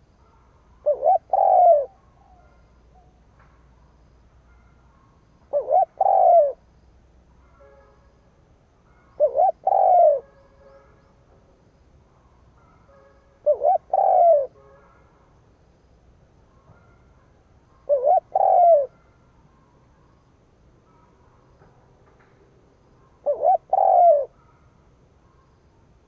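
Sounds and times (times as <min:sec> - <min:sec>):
dove cooing: 0:00.8 - 0:03.2, 0:05.5 - 0:06.6, 0:09.2 - 0:10.3, 0:13.4 - 0:14.6, 0:17.8 - 0:19.0, 0:23.1 - 0:24.4.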